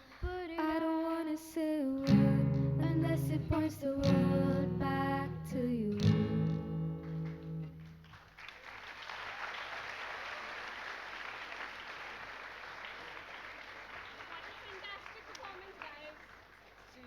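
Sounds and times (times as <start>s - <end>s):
guitar chord ringing: 2.0s - 7.9s
audience applauding: 7.0s - 17.0s.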